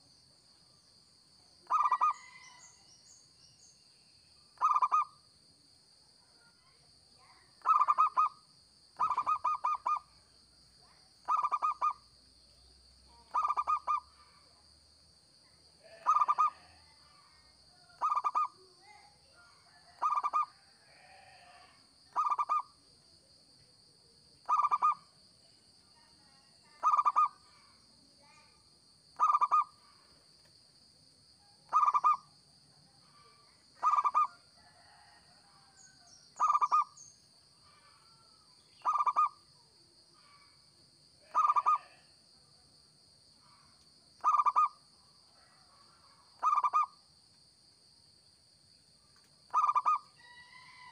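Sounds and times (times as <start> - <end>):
dove cooing: 1.6 - 2.4, 4.6 - 5.1, 7.6 - 8.3, 9.0 - 10.0, 11.3 - 12.0, 13.3 - 14.0, 15.9 - 16.7, 18.0 - 18.5, 22.1 - 22.7, 24.5 - 25.0, 26.8 - 27.3, 29.2 - 29.7, 31.7 - 32.2, 33.8 - 35.0, 36.4 - 36.9, 38.8 - 39.3, 41.3 - 42.0, 44.2 - 44.7, 46.4 - 46.9, 49.5 - 50.0.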